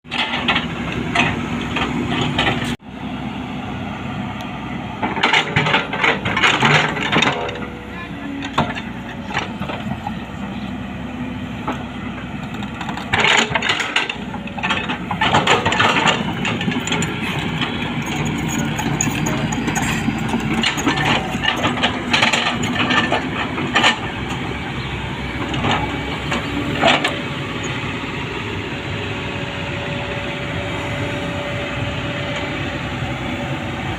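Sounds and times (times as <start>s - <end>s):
diesel engine running under load: 0.1s - 33.9s.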